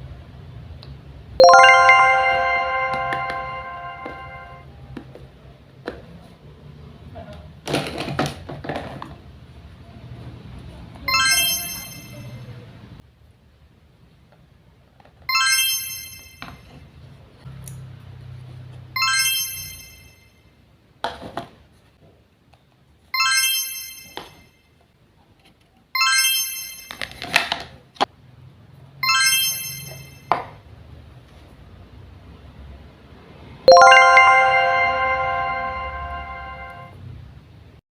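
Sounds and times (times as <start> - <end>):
electronic chime tune: 1.4 - 4.6, 11.1 - 12.1, 19.0 - 20.0, 33.7 - 36.9.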